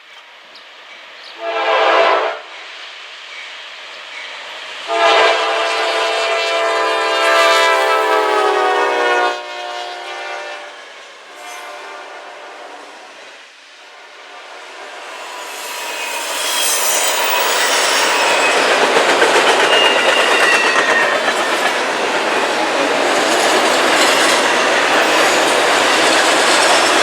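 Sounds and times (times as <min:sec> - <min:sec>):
train wheels rumbling on rails: 0:05.7 - 0:11.9, 0:14.0 - 0:27.0
high wheel squeals: 0:07.0 - 0:09.2, 0:14.9 - 0:27.0.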